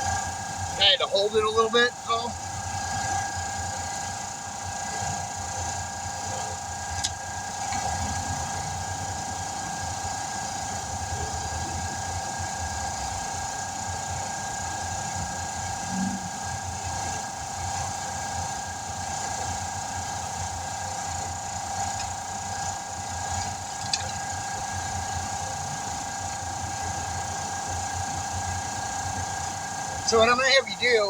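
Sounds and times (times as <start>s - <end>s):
engine running with whine: 0.0s - 31.0s.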